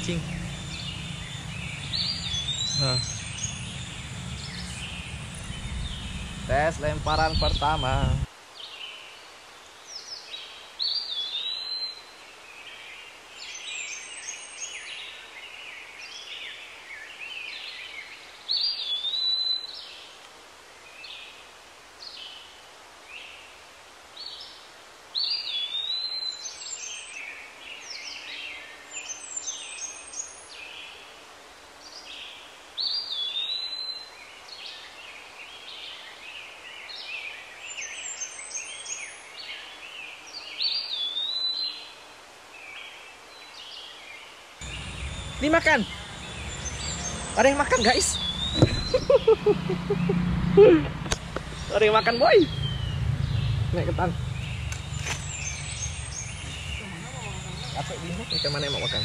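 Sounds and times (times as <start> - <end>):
birds singing and chirping: 0.0 - 9.1, 9.9 - 20.1, 32.0 - 41.9, 42.6 - 59.0
light outdoor background: 0.0 - 59.0.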